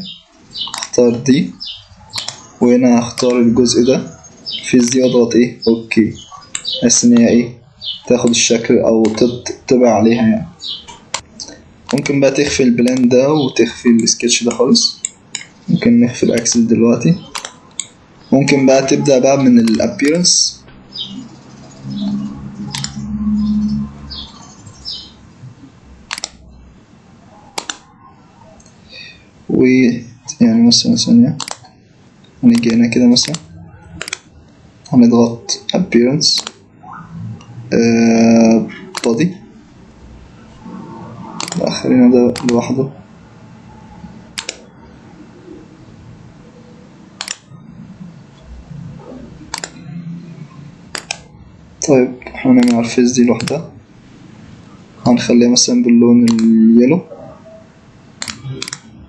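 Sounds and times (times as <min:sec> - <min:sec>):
computer mouse clicks: 0:00.6 - 0:01.0, 0:02.1 - 0:03.4, 0:09.0 - 0:09.3, 0:10.9 - 0:12.2, 0:17.2 - 0:18.0, 0:21.9 - 0:23.0, 0:26.1 - 0:26.4, 0:27.5 - 0:27.9, 0:31.4 - 0:31.7, 0:32.5 - 0:35.0, 0:36.4 - 0:36.6, 0:38.9 - 0:39.2, 0:41.3 - 0:41.7, 0:42.3 - 0:42.7, 0:44.3 - 0:44.7, 0:47.2 - 0:47.5, 0:49.5 - 0:49.8, 0:50.9 - 0:51.3, 0:52.6 - 0:53.6, 0:56.2 - 0:56.5, 0:58.2 - 0:58.9
low hum: 0:20.5 - 0:28.6.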